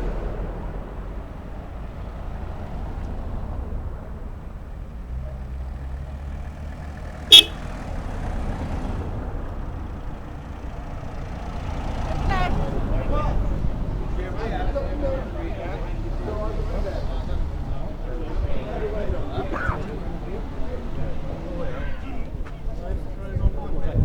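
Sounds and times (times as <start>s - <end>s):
vehicle engine running: 0.0s - 13.3s
loud horn toot: 7.3s - 7.7s.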